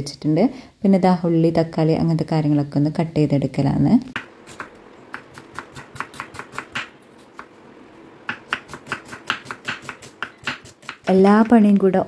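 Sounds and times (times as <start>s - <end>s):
knife chopping on cutting board: 4.2s - 7.5s, 8.3s - 11.6s.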